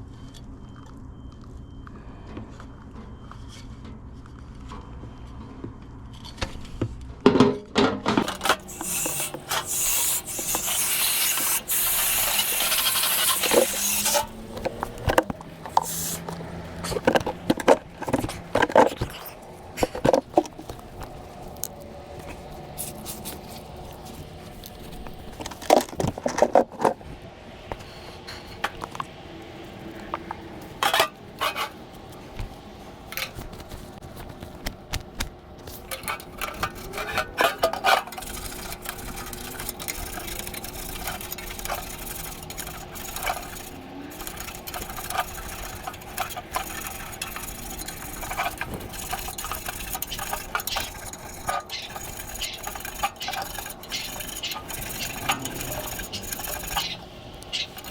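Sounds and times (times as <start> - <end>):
metal parts and tools clinking: 7.4 - 27.0, 30.2 - 31.8, 35.7 - 57.9.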